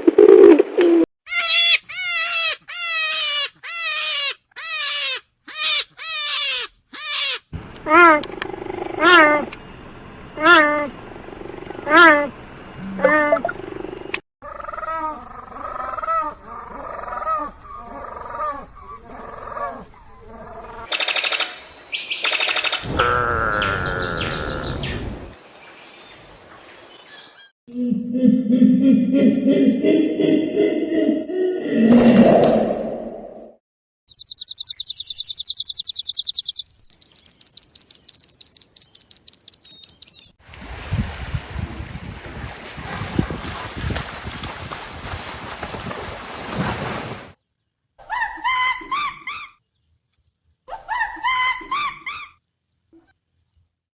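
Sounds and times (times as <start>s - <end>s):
animal calls rising and falling: 22.4s - 25.3s
songbird trilling: 34.1s - 40.4s
wind rumble on microphone: 40.5s - 46.6s.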